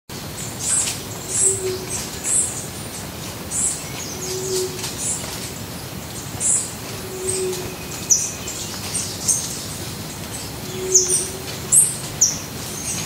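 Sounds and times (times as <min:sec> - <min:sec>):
high-pitched bird calls: 0:00.6 - 0:02.6, 0:03.6 - 0:05.2, 0:06.4 - 0:09.6, 0:10.6 - 0:13.0.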